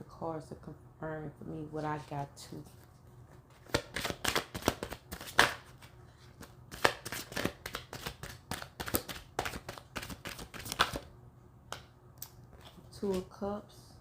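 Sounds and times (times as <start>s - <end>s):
cards being shuffled: 2.7s - 11.1s.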